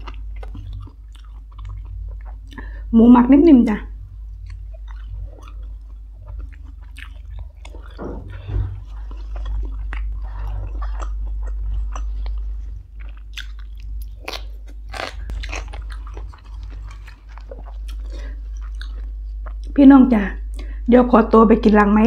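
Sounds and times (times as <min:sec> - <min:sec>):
person chewing food: 0:00.0 - 0:02.9, 0:03.9 - 0:19.8
food crunches: 0:04.4 - 0:19.8.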